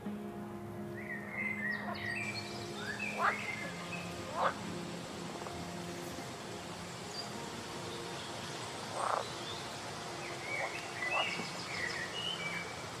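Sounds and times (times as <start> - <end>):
background hiss: 0.0 - 13.0
bird chirps: 10.3 - 12.7.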